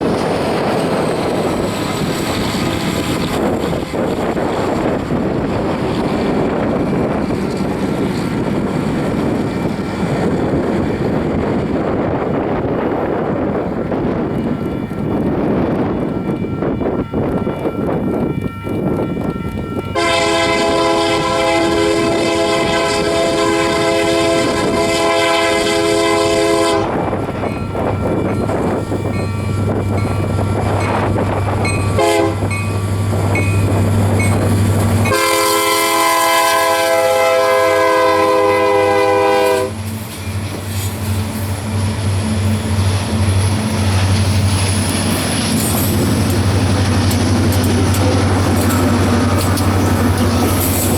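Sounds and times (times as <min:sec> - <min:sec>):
diesel locomotive drone: 0:00.0 - 0:50.9
wind on microphone: 0:00.0 - 0:50.9
locomotive air horn blasts: 0:20.0 - 0:27.0, 0:31.9 - 0:32.5, 0:35.0 - 0:39.8.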